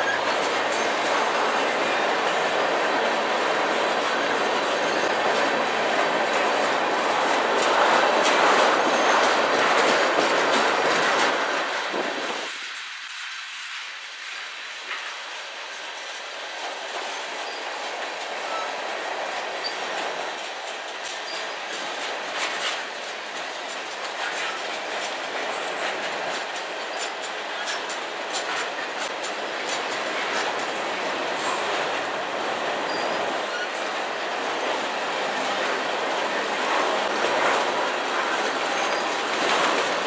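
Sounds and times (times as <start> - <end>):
wheels clacking over rail joints: 0.0 - 13.7, 14.3 - 40.0
train wheels rolling on rails: 0.0 - 40.0
faint wheel squeal: 32.9 - 34.0, 38.6 - 39.2.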